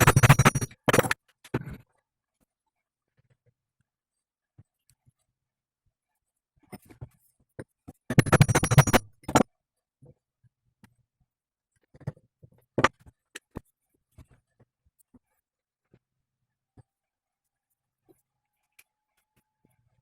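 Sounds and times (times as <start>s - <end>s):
rapid metal rattling strikes: 0.0s - 1.2s, 8.1s - 9.4s.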